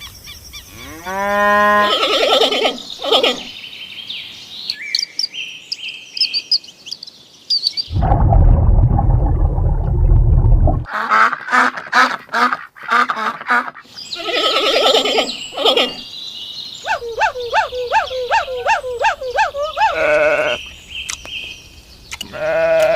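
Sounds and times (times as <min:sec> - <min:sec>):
farm animals bleating: 0:00.7 - 0:02.8, 0:14.2 - 0:15.9, 0:19.8 - 0:20.6, 0:22.2 - 0:22.9.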